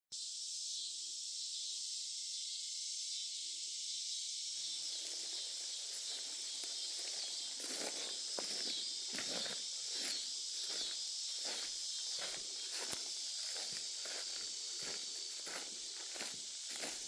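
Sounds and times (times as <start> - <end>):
cicadas and insects chorus: 0.2 - 17.0
footsteps: 4.9 - 17.0.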